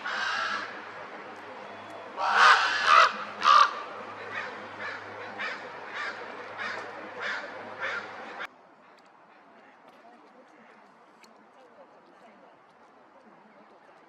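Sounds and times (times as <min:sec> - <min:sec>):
crow cawing: 0:00.0 - 0:00.9, 0:02.2 - 0:08.5.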